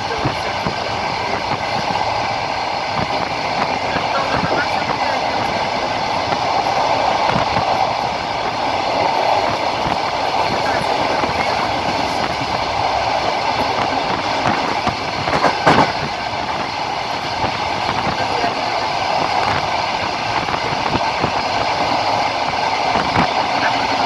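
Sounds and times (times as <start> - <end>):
train rumbling: 0.0 - 24.0
wheels clattering over rail joints: 0.0 - 24.0.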